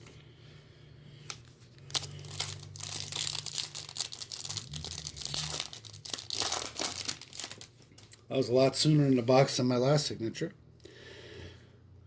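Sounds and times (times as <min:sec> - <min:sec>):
wrapper crackling and tearing: 0:01.8 - 0:08.2.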